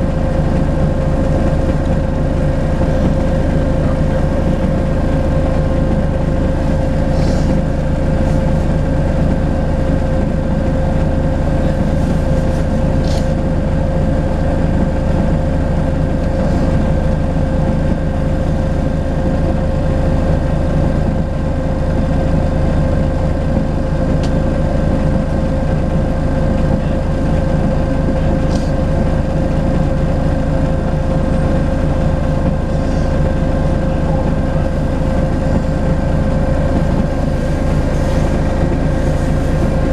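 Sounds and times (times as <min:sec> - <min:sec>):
diesel bus engine running: 0:00.0 - 0:39.9.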